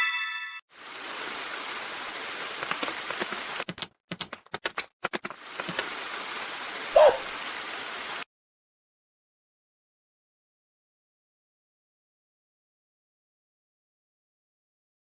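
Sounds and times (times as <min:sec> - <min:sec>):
steady rain-like hiss: 0:00.7 - 0:03.6, 0:05.4 - 0:08.3.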